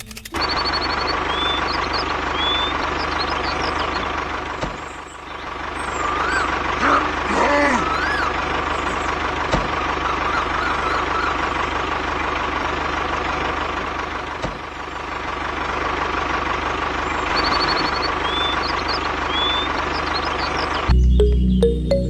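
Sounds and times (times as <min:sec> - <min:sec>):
high chirps: 0:00.0 - 0:04.0, 0:17.3 - 0:22.0
tractor drive whining: 0:00.0 - 0:21.0.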